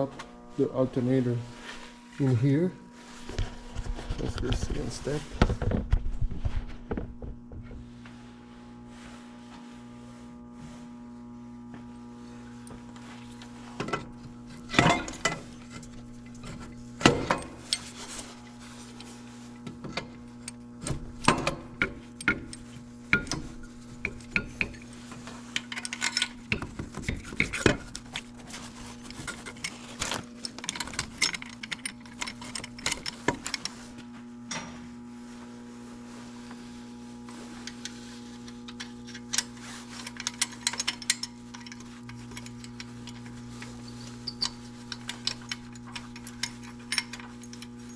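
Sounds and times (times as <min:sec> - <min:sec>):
steady low hum: 0:00.0 - 0:47.9
metal tools clinking: 0:25.5 - 0:33.8, 0:38.7 - 0:47.9.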